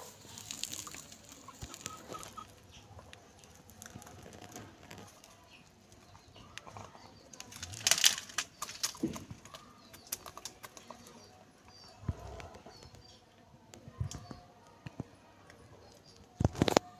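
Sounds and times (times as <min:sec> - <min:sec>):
roosters pecking crisp papad: 0:00.0 - 0:13.1.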